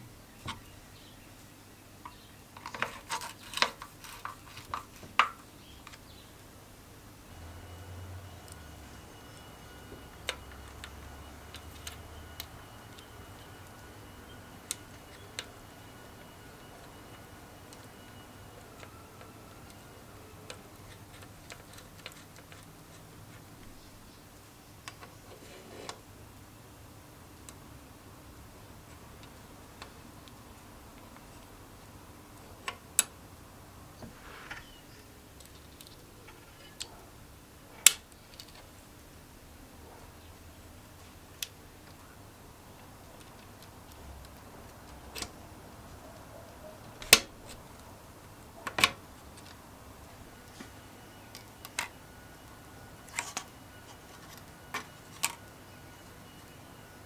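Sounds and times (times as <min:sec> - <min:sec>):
tools and parts clicking: 0:02.6 - 0:06.0, 0:20.4 - 0:23.1, 0:37.8 - 0:38.7.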